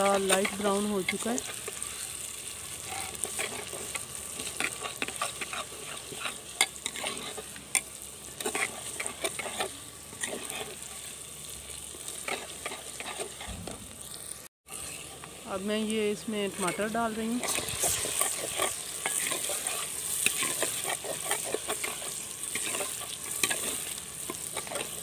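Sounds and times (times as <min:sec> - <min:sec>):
onions sizzling in pot: 0:00.0 - 0:25.0
metal ladle scraping pot: 0:02.8 - 0:07.4, 0:17.4 - 0:25.0.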